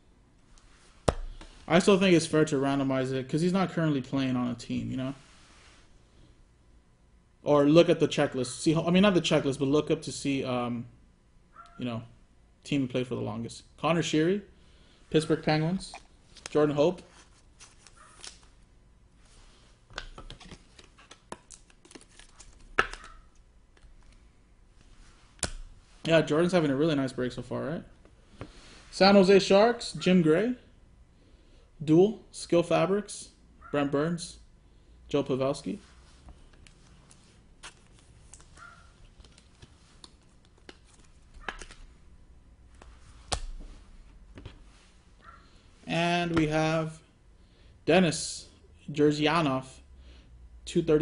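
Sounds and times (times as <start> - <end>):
cards clicking and rustling: 17.6 - 18.6, 19.9 - 24.2, 36.3 - 42.0.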